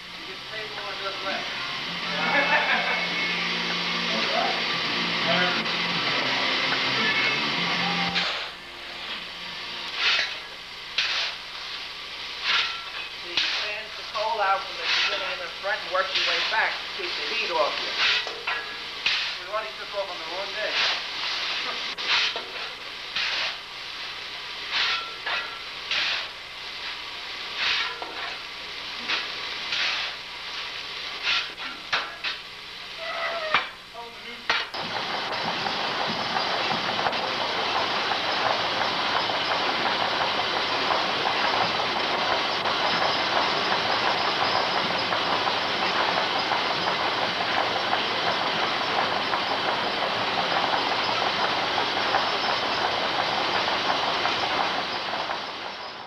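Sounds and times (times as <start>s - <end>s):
steam hissing: 0.0s - 56.0s
irregular knocks and clanks: 34.5s - 55.8s.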